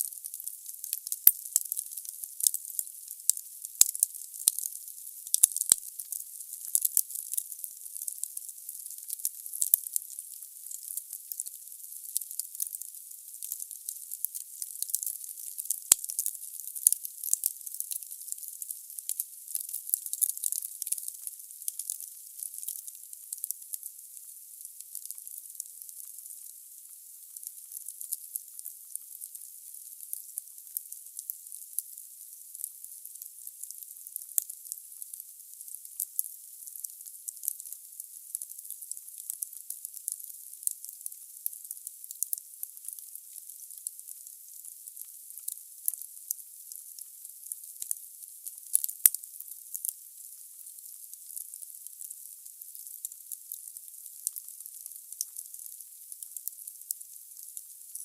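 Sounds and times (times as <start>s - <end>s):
wood fire crackling: 5.3s - 6.1s.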